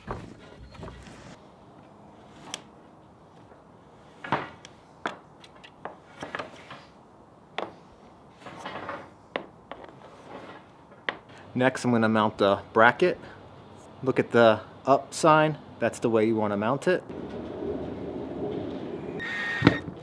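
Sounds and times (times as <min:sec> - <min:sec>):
power cord scraping in hole: 0:19.0 - 0:19.9.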